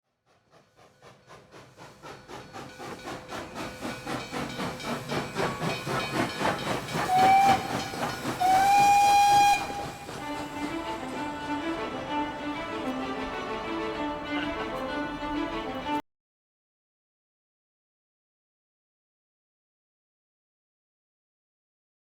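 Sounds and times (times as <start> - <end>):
steam locomotive chuffing: 0.1 - 16.0
steam locomotive whistle: 5.8 - 11.8.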